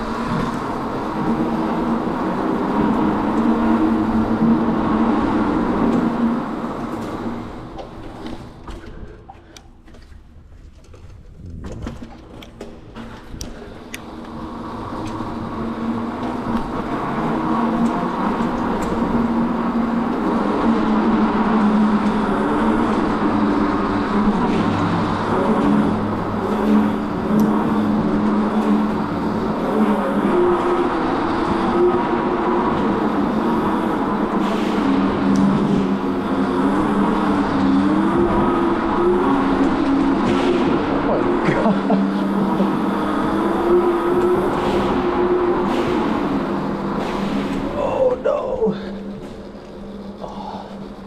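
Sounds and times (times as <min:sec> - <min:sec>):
vehicle engine drone: 0:00.0 - 0:51.0.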